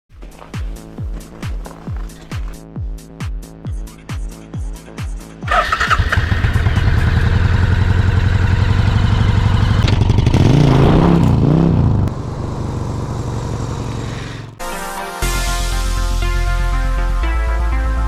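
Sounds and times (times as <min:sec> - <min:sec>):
motorcycle engine idling and revving: 0:05.4 - 0:14.6.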